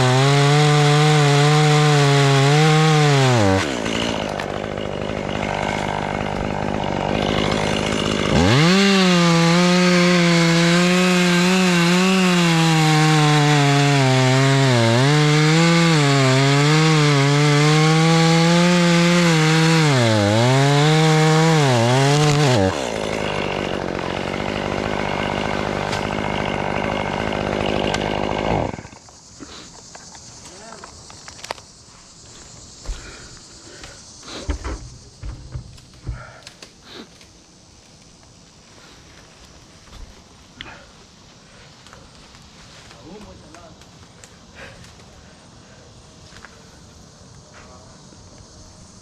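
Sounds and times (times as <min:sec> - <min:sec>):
chainsaw cutting wood: 0:00.0 - 0:29.2.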